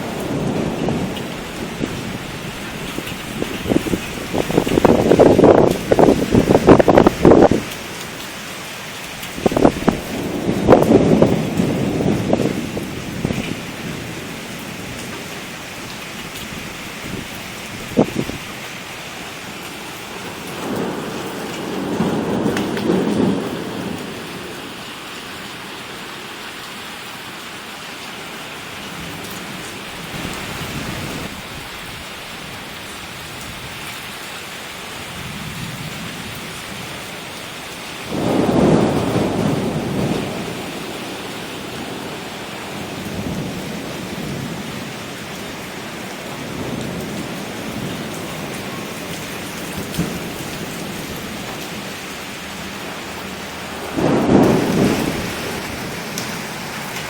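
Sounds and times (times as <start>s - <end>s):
thunder rolling: 0.0s - 7.8s, 9.2s - 15.2s, 20.2s - 24.7s, 30.1s - 31.4s, 38.0s - 57.0s
heavy rain hissing: 0.0s - 57.0s.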